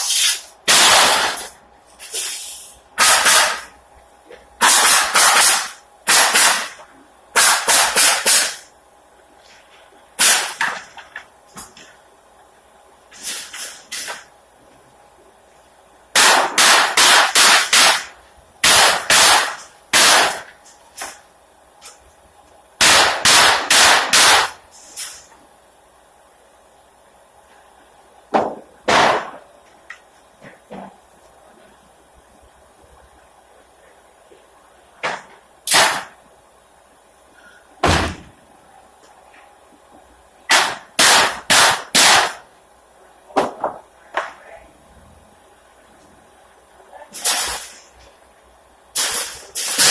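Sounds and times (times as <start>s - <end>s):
nail gun shots: 0.2s - 1.5s, 3.0s - 3.7s, 4.6s - 6.8s, 7.4s - 8.7s, 10.2s - 10.9s, 16.1s - 21.2s, 22.8s - 25.2s, 28.4s - 29.4s, 35.0s - 36.2s, 37.8s - 38.3s, 40.5s - 42.4s, 47.2s - 47.8s, 49.0s - 49.9s.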